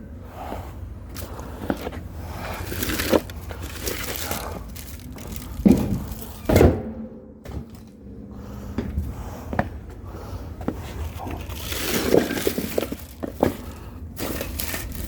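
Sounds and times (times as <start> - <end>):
firewood scraping and knocking: 1.6 - 6.6, 10.9 - 15.0
heavy thuds: 4.8 - 11.0.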